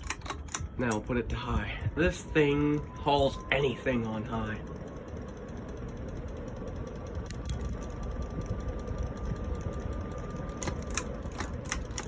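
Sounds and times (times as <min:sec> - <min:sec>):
ceiling fan air rush: 0:00.0 - 0:12.0
fan motor hum: 0:00.0 - 0:12.0
sharp clicks: 0:06.0 - 0:12.0.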